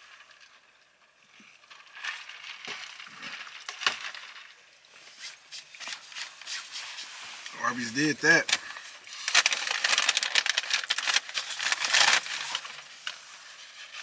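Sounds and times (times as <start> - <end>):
eating crunches and rustles: 5.7 - 14.0.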